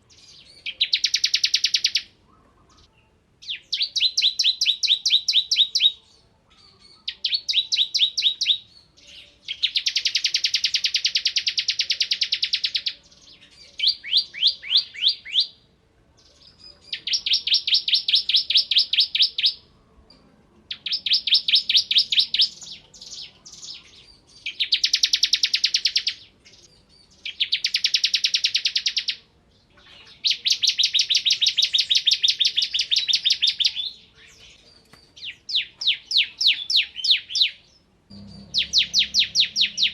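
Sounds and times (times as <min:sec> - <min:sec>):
bird singing rapid trills: 0:00.1 - 0:02.1, 0:16.3 - 0:19.6, 0:20.7 - 0:29.2, 0:29.8 - 0:39.9.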